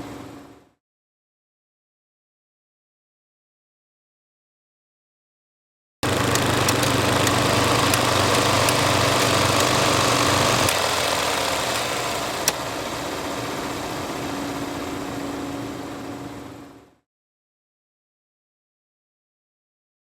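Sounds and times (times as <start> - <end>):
sharp clicks: 6.0 - 12.7
film projector whirring: 6.0 - 16.5.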